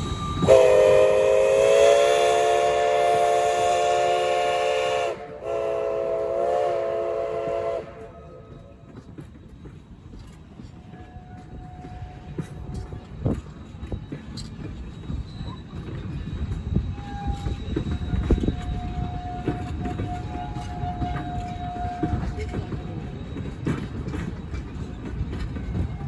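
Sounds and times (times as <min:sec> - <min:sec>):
steam locomotive whistle: 0:00.0 - 0:08.7, 0:16.9 - 0:22.8
train rolling past rumble: 0:00.0 - 0:26.0
wheels clicking on rails: 0:08.0 - 0:26.0.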